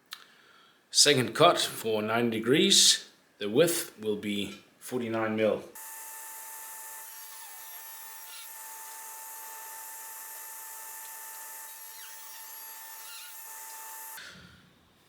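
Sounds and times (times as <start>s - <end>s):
table saw running: 5.8s - 14.2s.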